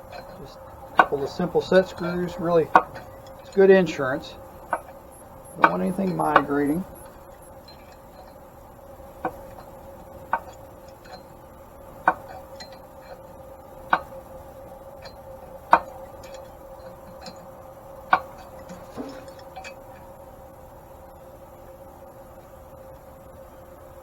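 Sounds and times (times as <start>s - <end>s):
hand tap cutting threads in metal: 0.9s - 3.6s, 5.6s - 6.8s.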